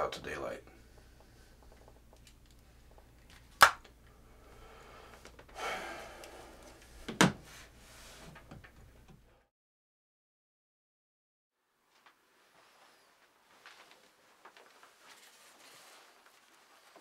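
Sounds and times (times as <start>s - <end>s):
short rustle: 12.4s - 17.0s.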